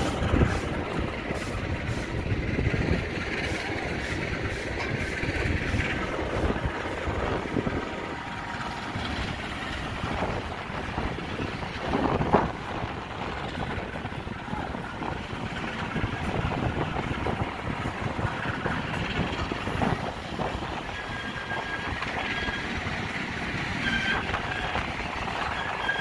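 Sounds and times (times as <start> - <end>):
rail wagons rumbling on track: 0.0 - 26.0
high metallic wheel squeal: 20.5 - 26.0.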